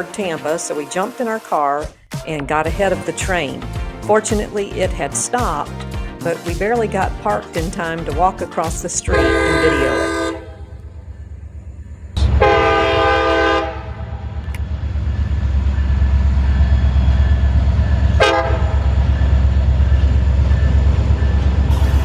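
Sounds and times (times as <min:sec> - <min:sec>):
train engine rumble: 0:02.8 - 0:22.0
diesel locomotive horn: 0:09.1 - 0:11.0, 0:12.1 - 0:14.4, 0:18.2 - 0:19.0, 0:21.7 - 0:22.0.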